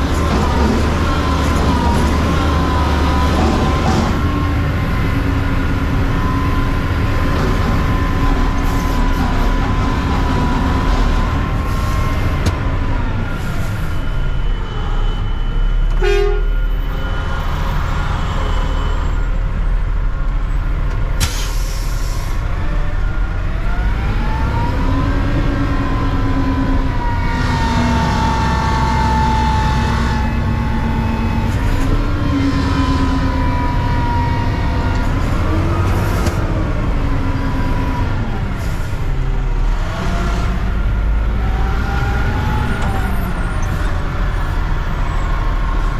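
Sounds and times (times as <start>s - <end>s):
garbage truck engine running: 0.0s - 15.1s.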